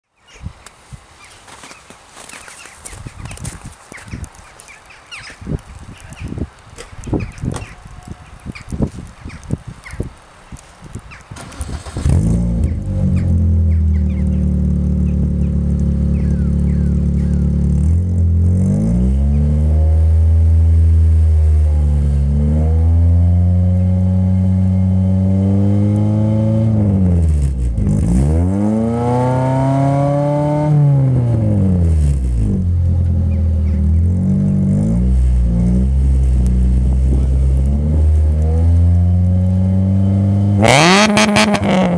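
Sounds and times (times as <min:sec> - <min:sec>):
car engine idling and revving: 0:11.4 - 0:41.9.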